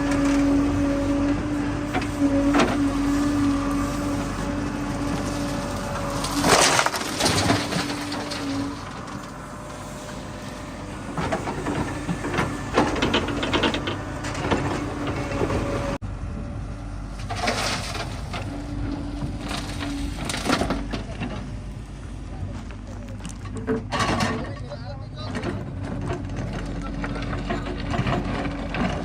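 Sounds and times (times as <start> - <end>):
bucket crunching and scraping mud: 0.0 - 15.8
diesel engine running: 0.0 - 29.0.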